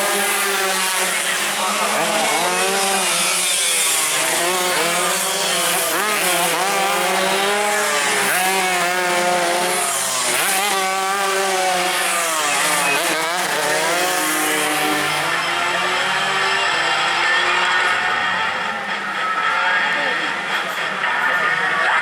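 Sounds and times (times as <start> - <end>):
racing motorcycles buzzing past: 0.0 - 19.9.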